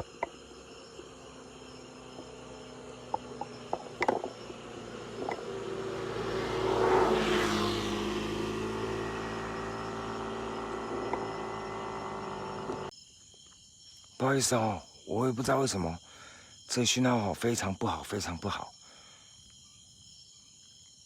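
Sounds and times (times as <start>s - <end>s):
steady engine hum: 0.0s - 12.9s
car passing by: 1.3s - 12.6s.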